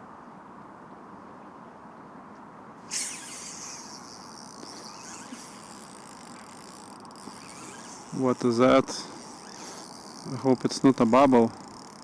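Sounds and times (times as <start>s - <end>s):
high hiss: 2.8s - 11.8s.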